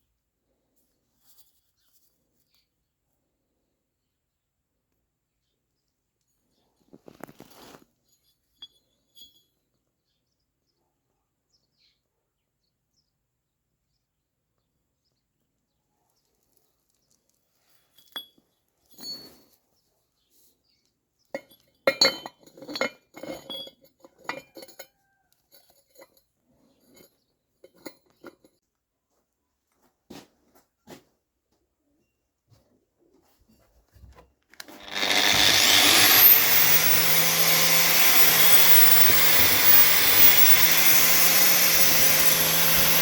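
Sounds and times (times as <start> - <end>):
metal tools clinking: 21.4 - 24.9, 34.6 - 43.0.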